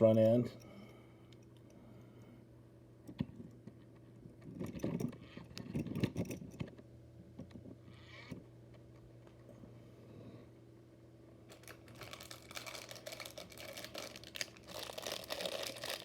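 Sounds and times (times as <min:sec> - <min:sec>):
steady low hum: 0:00.0 - 0:16.0
plastic bags rustling: 0:11.5 - 0:16.0.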